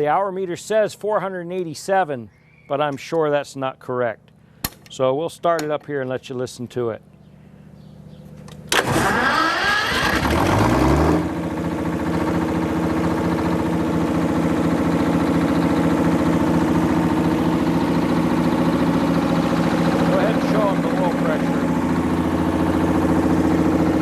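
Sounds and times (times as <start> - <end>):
diesel generator starting up: 7.1 - 24.0.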